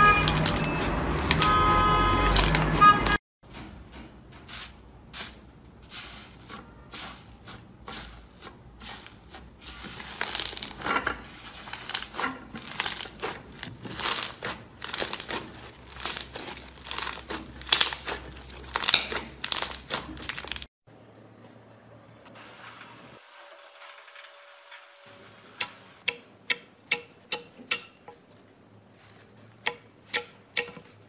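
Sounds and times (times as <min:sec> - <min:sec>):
slime squelching: 0:04.5 - 0:20.7.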